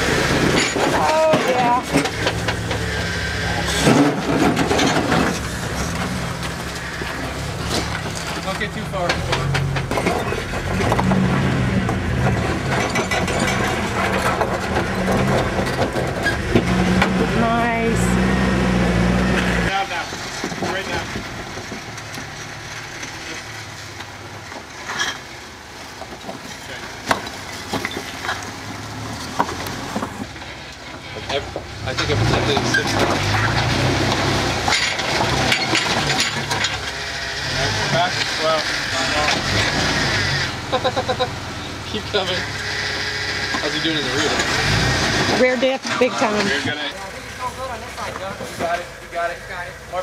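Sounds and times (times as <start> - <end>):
tyres scraping on rock: 0.0 - 17.3
engine running at low revs: 0.0 - 22.2.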